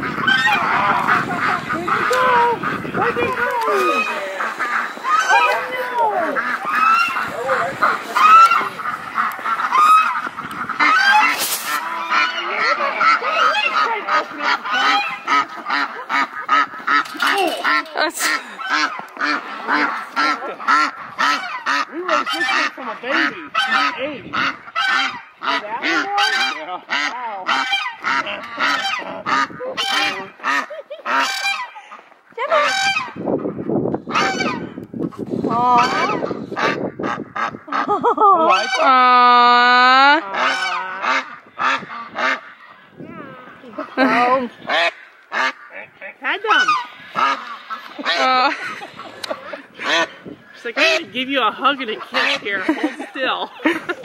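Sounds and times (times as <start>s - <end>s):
geese honking: 0.0s - 54.0s
goose hissing: 3.6s - 12.8s.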